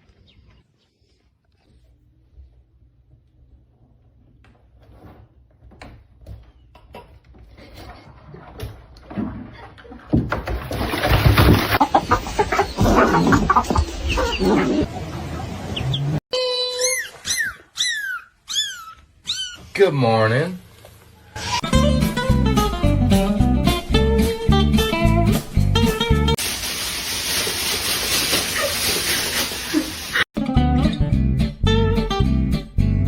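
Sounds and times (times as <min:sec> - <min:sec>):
animals squawking: 0:11.8 - 0:14.9, 0:15.8 - 0:19.7.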